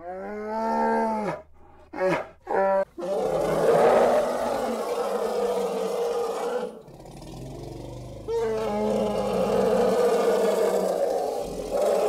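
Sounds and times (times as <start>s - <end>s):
elephant loud rising call: 3.0s - 12.0s
elephant low rumble: 6.8s - 12.0s.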